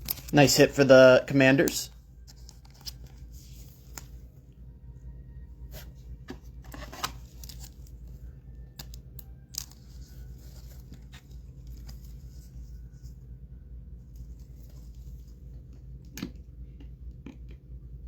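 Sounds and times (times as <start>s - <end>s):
steady low hum: 0.0s - 18.0s
wrapper crinkling and tearing: 6.8s - 8.0s, 8.7s - 12.0s.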